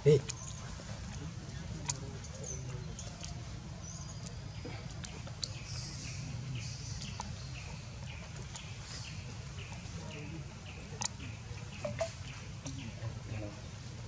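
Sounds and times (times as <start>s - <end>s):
bird chirps: 3.8s - 13.0s.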